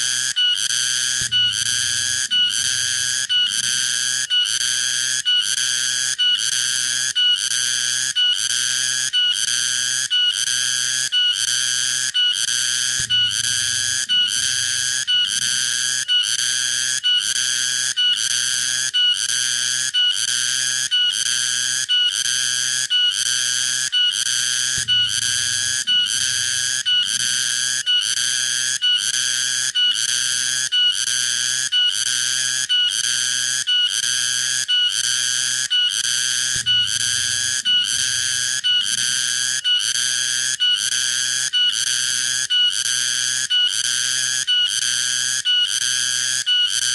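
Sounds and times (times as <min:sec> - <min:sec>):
cicada pulsing buzz: 0:12.0 - 0:17.0, 0:36.3 - 0:40.0.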